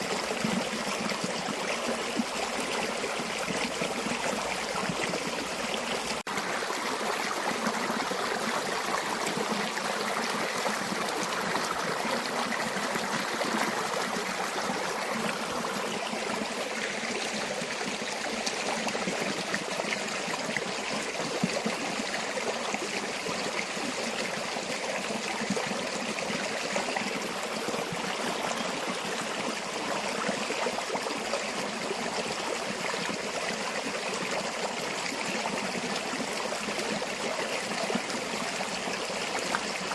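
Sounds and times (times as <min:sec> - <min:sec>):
river water running: 0:00.0 - 0:39.9.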